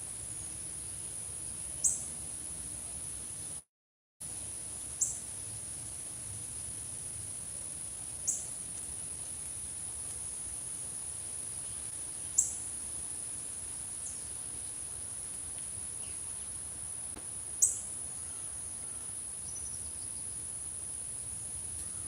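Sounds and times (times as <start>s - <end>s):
faint bird chirps: 1.8s - 2.1s, 11.6s - 12.6s, 17.6s - 20.4s.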